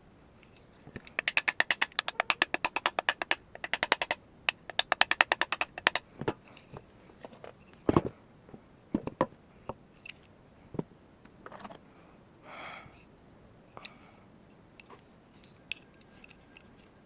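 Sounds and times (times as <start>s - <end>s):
rapid sharp clicks: 1.2s - 6.0s.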